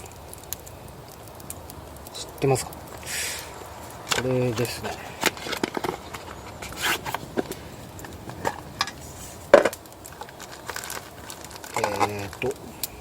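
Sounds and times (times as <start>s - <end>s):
small objects clicking and knocking: 4.1s - 13.0s.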